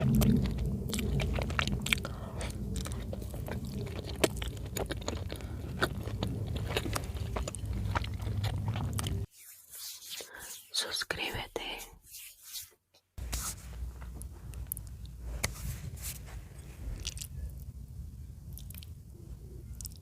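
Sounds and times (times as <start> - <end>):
low rumble: 0.0 - 9.3, 13.6 - 19.9
wet chewing clicks: 0.0 - 9.3, 16.9 - 17.7, 18.4 - 19.0, 19.7 - 20.0.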